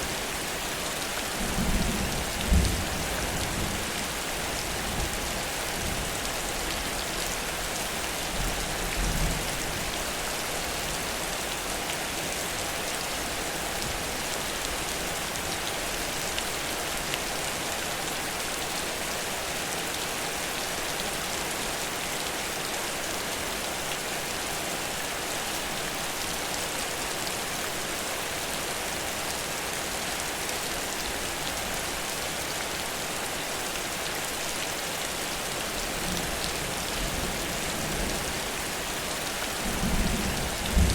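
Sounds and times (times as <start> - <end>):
heavy rain pattering: 0.1 - 19.0, 28.4 - 40.9.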